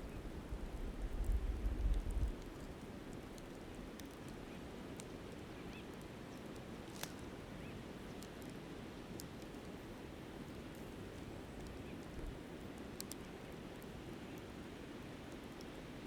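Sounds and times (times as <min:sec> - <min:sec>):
wind rumble on microphone: 0:00.0 - 0:02.8
campfire crackling: 0:00.2 - 0:16.0.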